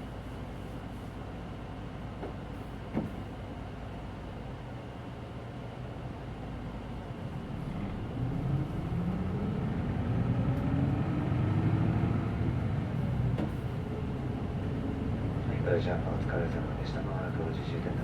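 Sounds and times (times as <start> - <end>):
bus engine accelerating: 7.2 - 18.0.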